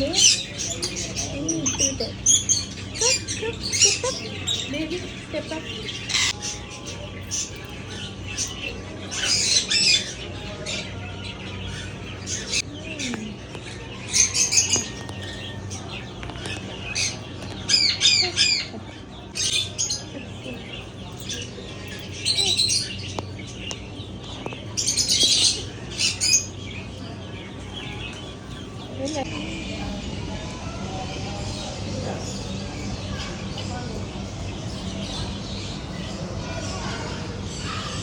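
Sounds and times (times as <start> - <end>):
parrots squawking: 0.0 - 30.1.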